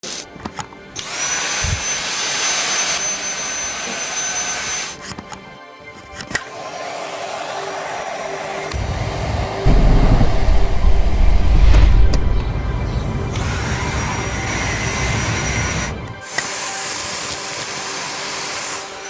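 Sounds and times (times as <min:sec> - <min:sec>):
handheld vacuum motor whining: 0:01.0 - 0:05.4, 0:13.4 - 0:19.0.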